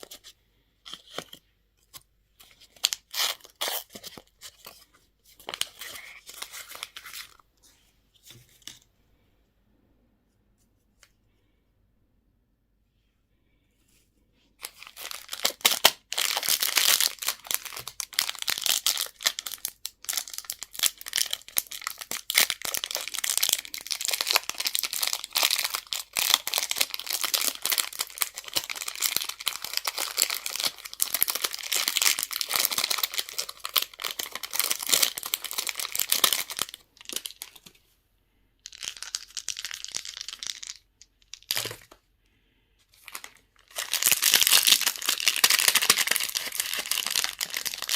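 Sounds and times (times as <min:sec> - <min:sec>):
candy wrappers crinkling: 0:00.9 - 0:04.8, 0:05.4 - 0:07.4, 0:14.6 - 0:37.7, 0:38.6 - 0:42.0, 0:43.0 - 0:47.9.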